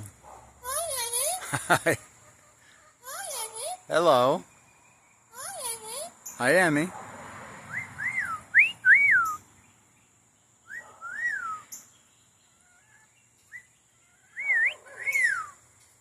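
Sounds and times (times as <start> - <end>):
parrot whistling: 7.7 - 9.4, 10.7 - 11.7, 14.3 - 15.6.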